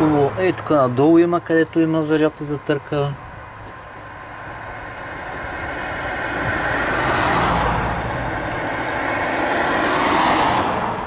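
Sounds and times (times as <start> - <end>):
motor vehicle running: 0.0 - 11.0.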